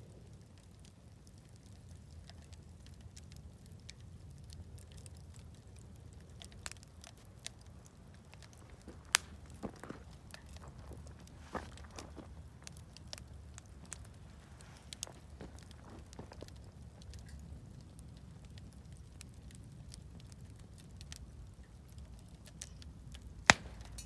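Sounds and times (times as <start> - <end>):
campfire crackling: 0.0 - 24.0
fire pops and snaps: 0.2 - 24.0
steady low rumble: 23.3 - 24.0.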